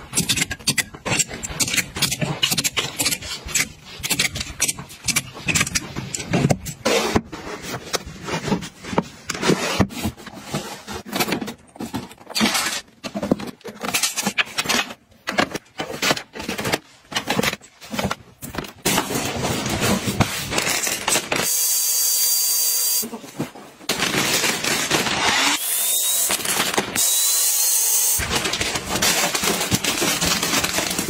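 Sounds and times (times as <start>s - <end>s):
small items clicking and knocking: 0.0s - 6.8s, 23.9s - 31.0s.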